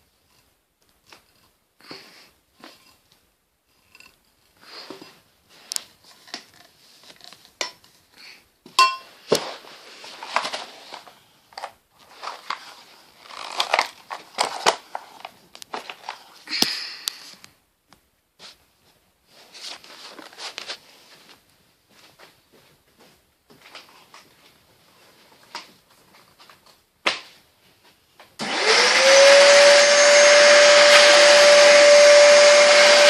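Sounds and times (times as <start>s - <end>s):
vacuum cleaner parts being handled: 8.7s - 16.4s, 19.5s - 21.4s.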